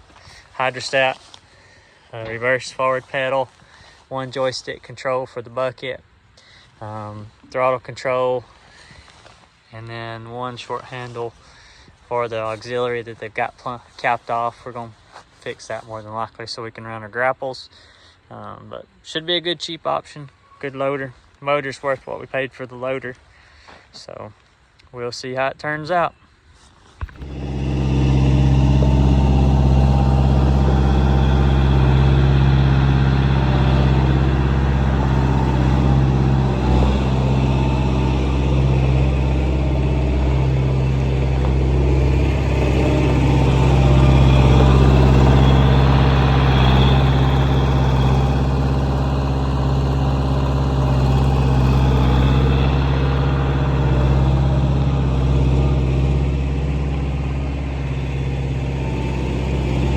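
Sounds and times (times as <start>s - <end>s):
loader engine running: 27.0s - 59.9s.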